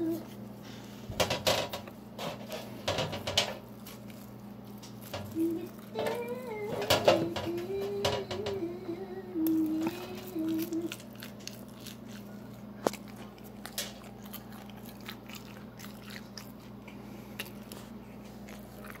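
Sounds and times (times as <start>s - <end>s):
steady low hum: 0.0s - 19.0s
person chewing crunchy food: 3.6s - 6.0s, 9.4s - 19.0s.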